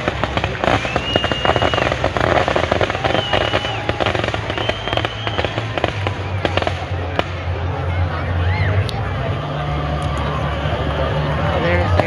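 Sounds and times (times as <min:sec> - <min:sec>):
firework whistles: 0:00.0 - 0:06.9
fireworks crackling and popping: 0:00.0 - 0:07.7.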